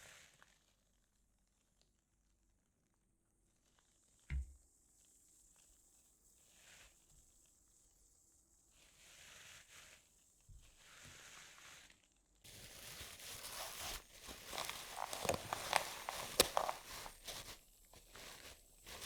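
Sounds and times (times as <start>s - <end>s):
material rustling and crinkling: 5.0s - 19.0s.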